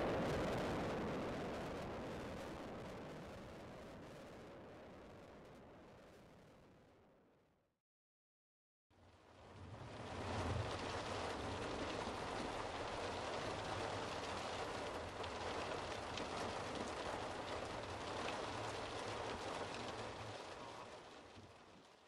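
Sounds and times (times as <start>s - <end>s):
rain pelting vehicle windshield: 9.9s - 22.0s.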